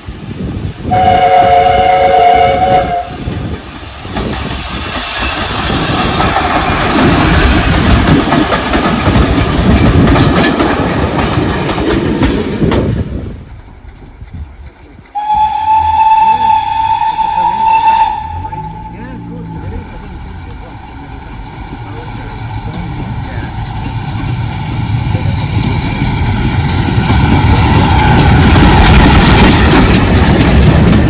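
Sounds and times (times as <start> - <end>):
steam locomotive whistle: 0.9 - 3.2, 15.2 - 19.7
train wheels clattering on rails: 0.9 - 18.2, 18.8 - 31.0.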